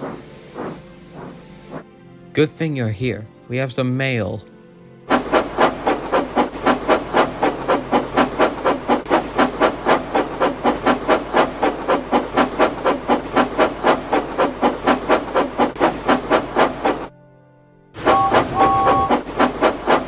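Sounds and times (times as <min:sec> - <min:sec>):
steam locomotive chuffing: 0:00.0 - 0:01.8, 0:05.1 - 0:17.1, 0:18.0 - 0:20.0.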